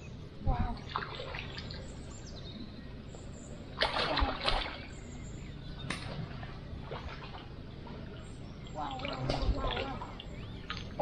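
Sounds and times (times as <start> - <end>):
fish splashing in water: 3.8 - 4.9.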